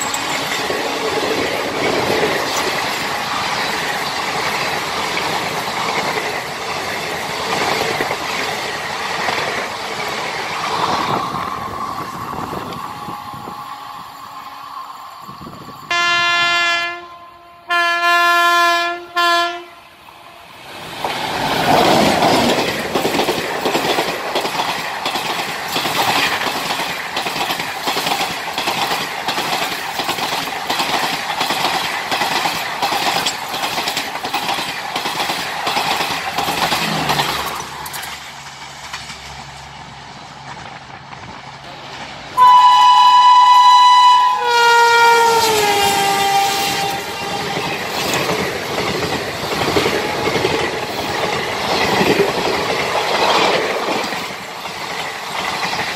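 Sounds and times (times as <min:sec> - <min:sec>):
wheels clacking over rail joints: 0:00.0 - 0:13.9, 0:20.6 - 0:42.4, 0:45.0 - 0:55.9
train rushing past: 0:00.0 - 0:55.9
locomotive horn blaring: 0:15.9 - 0:20.4, 0:42.4 - 0:47.7
train horn blasts: 0:15.9 - 0:20.4, 0:42.4 - 0:47.7.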